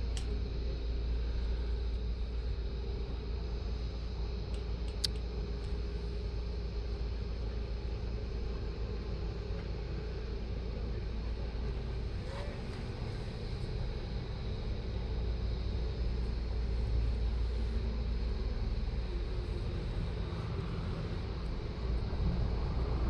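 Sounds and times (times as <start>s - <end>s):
low rumble: 18.4s - 23.0s.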